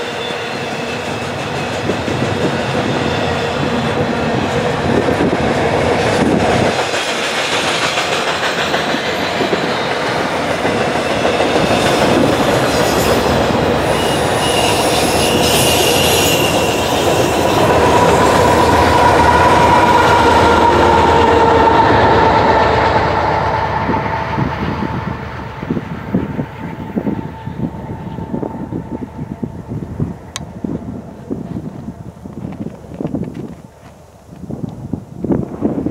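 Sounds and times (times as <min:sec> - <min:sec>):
train wheels clattering over rails: 0:00.6 - 0:24.0.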